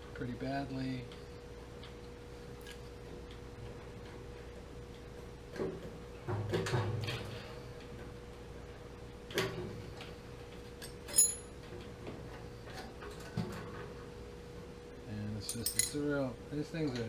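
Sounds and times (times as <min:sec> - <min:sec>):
faint steady hum: 0:00.0 - 0:17.0
metallic clicks and clinks: 0:10.8 - 0:11.5, 0:15.4 - 0:16.1.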